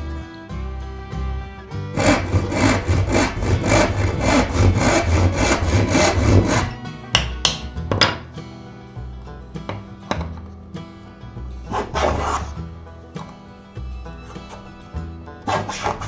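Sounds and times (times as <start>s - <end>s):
hand saw cutting wood: 1.9s - 7.6s, 11.6s - 13.4s, 14.2s - 16.0s.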